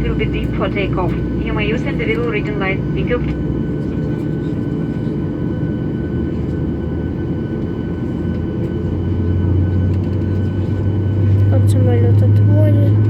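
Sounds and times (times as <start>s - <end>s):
aircraft engines rumbling in cabin: 0.0s - 13.0s.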